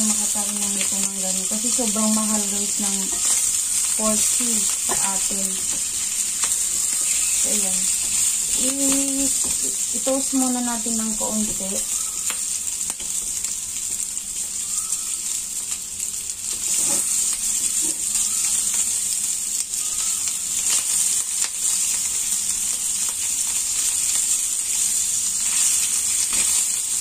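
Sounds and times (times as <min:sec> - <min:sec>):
meat sizzling in oil: 0:00.0 - 0:27.0
spatula scraping pan: 0:03.0 - 0:09.8, 0:16.6 - 0:18.1.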